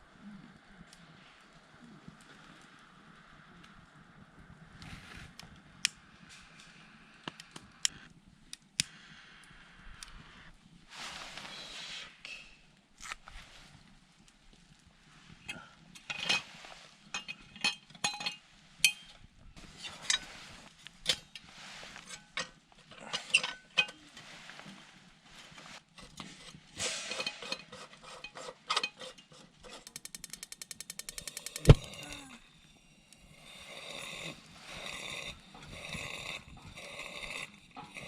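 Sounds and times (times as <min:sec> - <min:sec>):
ratcheting rattle: 0:29.7 - 0:31.8
hard objects clicking and clinking: 0:29.7 - 0:32.1.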